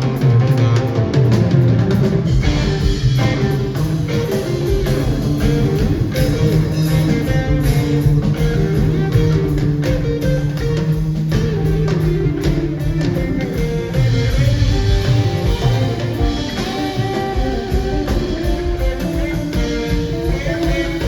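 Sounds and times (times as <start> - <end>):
bass guitar: 0.0 - 21.0
drums with cymbals: 0.0 - 21.0
electric guitar: 0.0 - 21.0.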